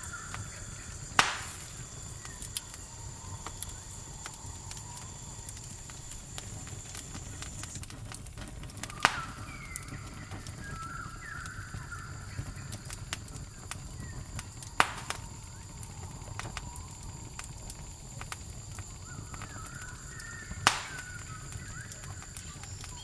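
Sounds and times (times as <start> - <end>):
campfire crackling: 0.0 - 23.0
insect trill: 0.0 - 23.0
bird chirps: 8.9 - 12.8, 19.0 - 23.0.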